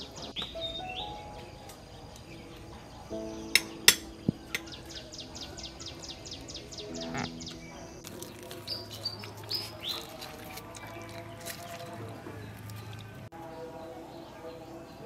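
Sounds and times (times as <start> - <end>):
small bird trilling: 6.7 - 8.0.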